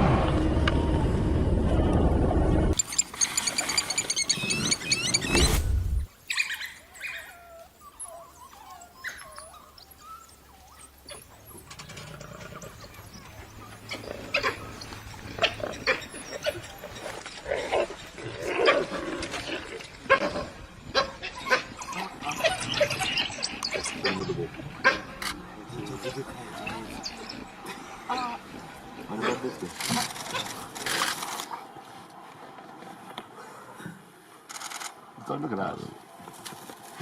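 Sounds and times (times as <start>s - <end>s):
wild dogs yipping and whimpering: 2.9s - 31.8s.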